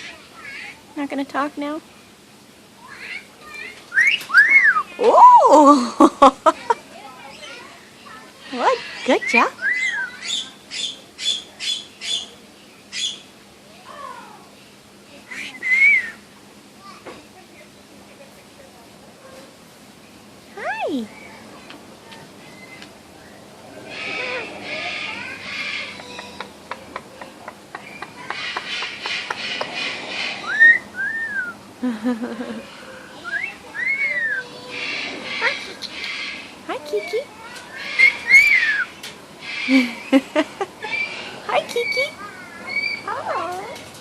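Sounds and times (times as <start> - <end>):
parrot whistled call: 3.9 - 5.4, 9.2 - 12.2, 15.3 - 16.2, 30.3 - 31.6, 33.2 - 34.6, 37.7 - 39.0
parrot squawking: 8.4 - 12.3, 23.8 - 26.5, 33.0 - 36.8, 37.7 - 40.1
parrot warbling call: 8.6 - 12.3, 33.1 - 36.5, 37.7 - 39.8.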